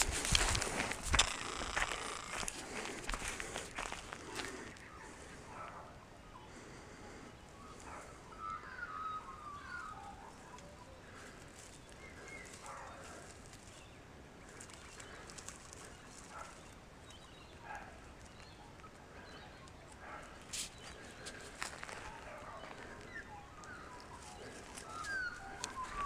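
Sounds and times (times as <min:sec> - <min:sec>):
faint bird chirps and whistles: 0:07.3 - 0:11.0, 0:21.8 - 0:26.0.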